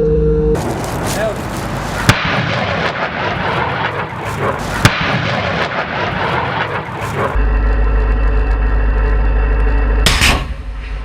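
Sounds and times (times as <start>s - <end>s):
sharp crack: 0.8s - 7.4s.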